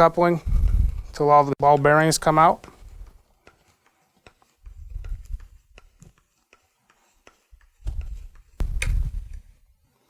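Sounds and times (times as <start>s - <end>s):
low handling thumps: 7.8s - 9.4s.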